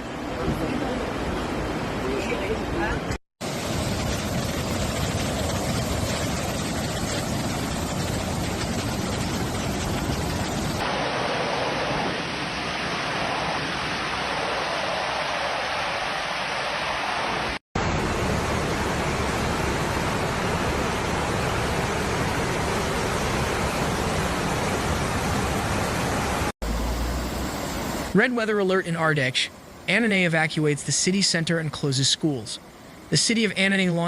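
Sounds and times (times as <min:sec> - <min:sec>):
floodwater rushing: 0:03.4 - 0:29.7.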